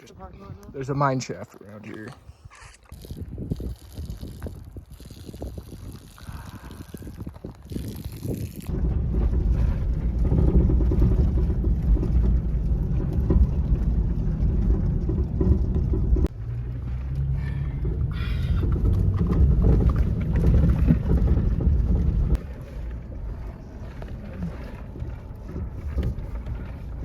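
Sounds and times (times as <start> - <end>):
tyres on rocky trail: 0.0 - 27.0
wind buffeting microphone: 2.2 - 27.0
truck engine rumbling: 8.6 - 27.0.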